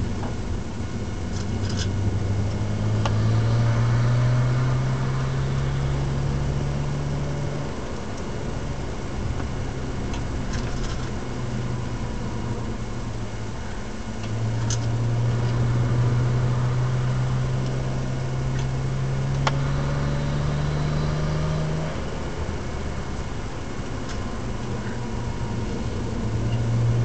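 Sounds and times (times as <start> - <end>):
car engine drone: 0.0 - 27.0
road noise: 0.0 - 27.0.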